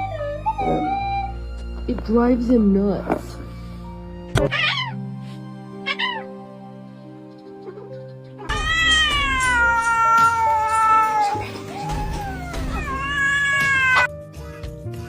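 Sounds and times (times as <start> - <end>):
cat yowling: 4.5 - 5.0, 5.8 - 6.4, 7.4 - 14.1.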